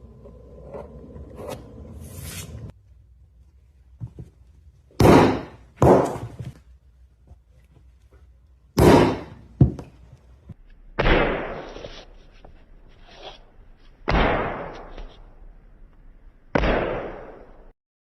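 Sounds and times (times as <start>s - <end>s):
leatherworking strokes: 0.3s - 2.8s
leatherworking knocks: 8.8s - 10.0s.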